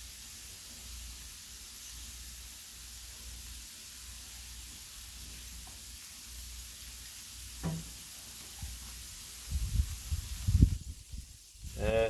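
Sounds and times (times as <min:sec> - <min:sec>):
food sizzling on a griddle: 0:00.0 - 0:12.0
brief knock: 0:07.6 - 0:07.9.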